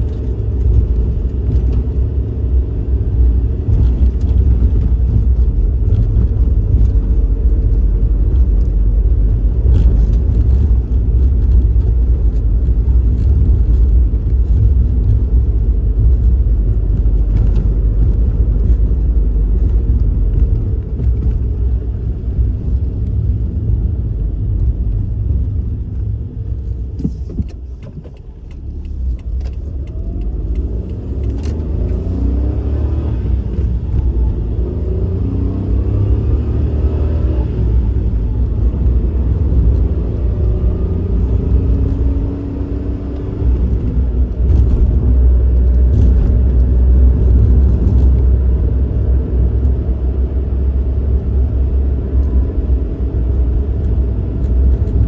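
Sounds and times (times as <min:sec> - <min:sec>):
car engine rumble: 0:00.0 - 0:55.0
road noise: 0:00.0 - 0:55.0.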